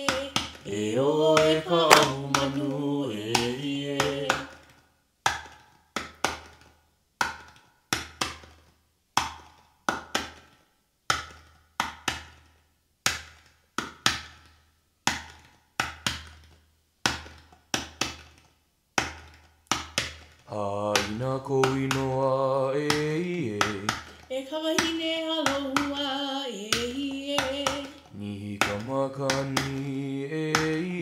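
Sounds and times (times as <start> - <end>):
gourd drum beating: 0.0 - 4.4.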